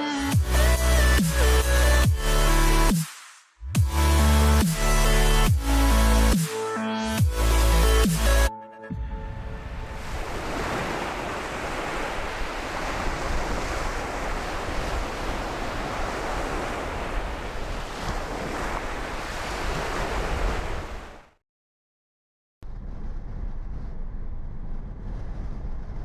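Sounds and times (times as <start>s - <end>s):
wind buffeting microphone: 9.2s - 21.2s
ocean surf washing ashore: 9.3s - 21.4s.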